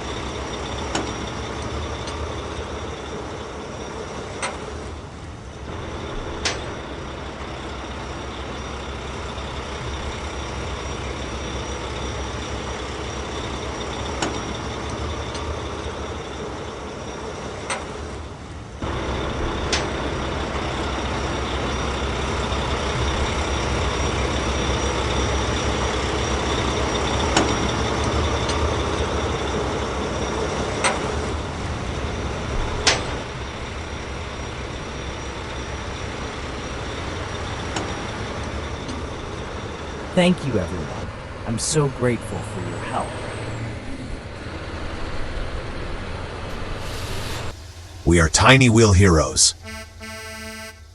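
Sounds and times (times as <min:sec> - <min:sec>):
truck engine rumbling: 0:46.1 - 0:50.9.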